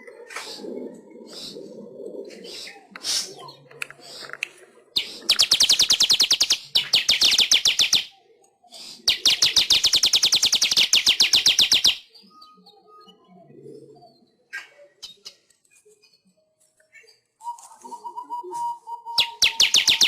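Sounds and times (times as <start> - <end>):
bird chattering song: 2.3 - 13.3, 13.9 - 20.0
faint bird chirps: 5.0 - 20.0.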